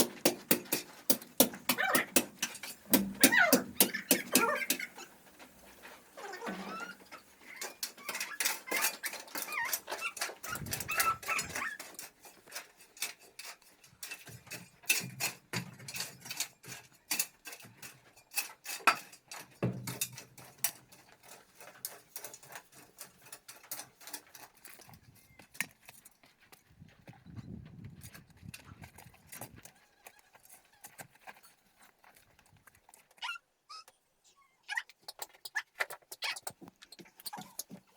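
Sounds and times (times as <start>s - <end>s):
sharp clicks and knocks: 0.0s - 5.6s.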